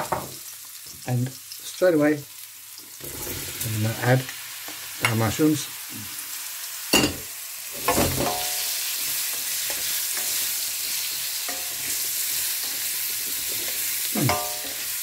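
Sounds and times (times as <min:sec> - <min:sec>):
mushrooms sizzling in oil: 0:00.0 - 0:15.0
spatula scraping ringing wok: 0:07.8 - 0:15.0.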